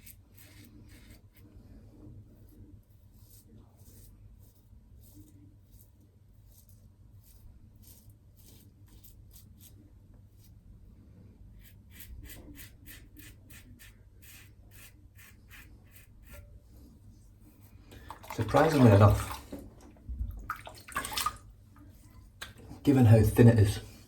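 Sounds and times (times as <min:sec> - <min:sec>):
razor scraping stubble: 0:02.9 - 0:10.6, 0:11.6 - 0:16.6.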